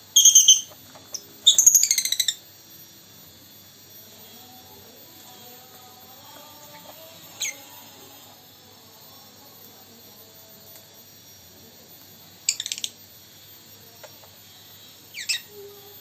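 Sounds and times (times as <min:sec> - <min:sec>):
lovebird shrill chirps: 0:00.1 - 0:00.7, 0:01.4 - 0:02.4, 0:15.1 - 0:15.5.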